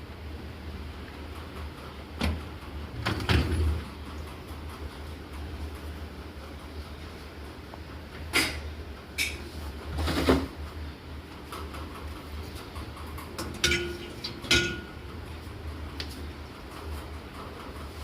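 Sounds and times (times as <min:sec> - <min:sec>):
dishes clattering and clinking: 0:08.3 - 0:10.5, 0:13.2 - 0:15.0.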